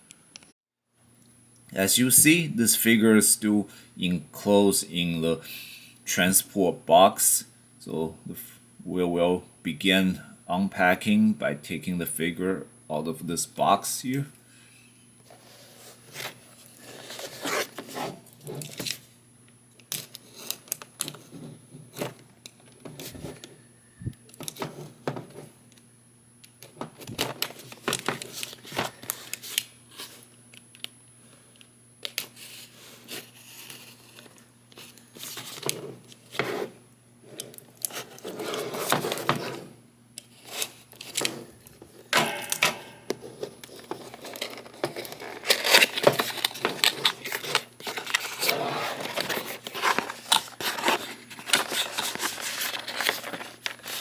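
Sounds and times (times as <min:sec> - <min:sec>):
cardboard tearing and rustling: 0:15.6 - 0:19.0, 0:43.3 - 0:54.0.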